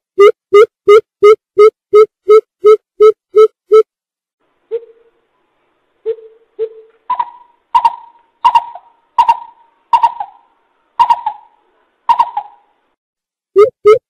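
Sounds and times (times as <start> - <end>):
bird calling sharp notes: 6.0 - 12.8.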